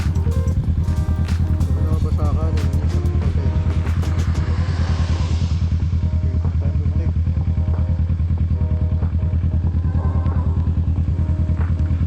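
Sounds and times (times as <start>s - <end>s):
background music with melody: 0.0s - 12.0s
motorcycle engine running steadily: 0.0s - 12.0s.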